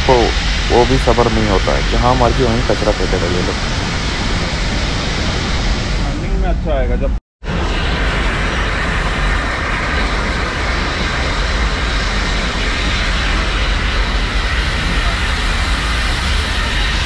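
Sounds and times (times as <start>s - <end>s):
wind rushing against microphone: 0.0s - 17.0s.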